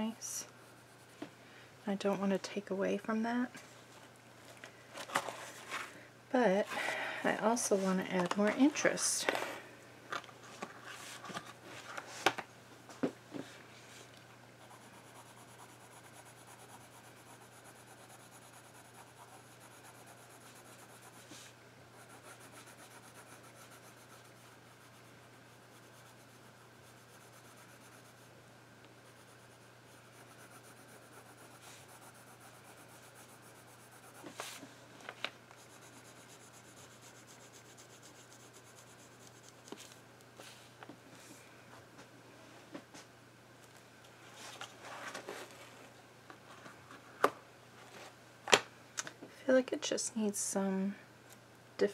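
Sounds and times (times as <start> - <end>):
drawing tool scratching on paper: 14.6 - 21.4, 22.0 - 28.3, 29.0 - 34.5, 35.6 - 39.8.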